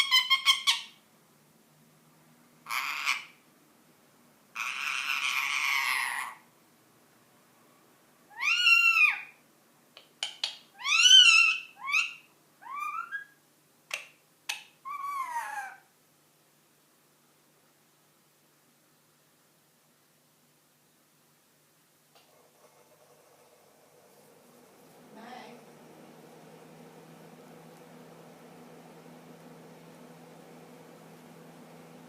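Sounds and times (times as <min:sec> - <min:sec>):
parakeet raspy squawking calls: 0:02.7 - 0:03.4, 0:04.6 - 0:06.4, 0:08.3 - 0:09.4, 0:10.8 - 0:13.3.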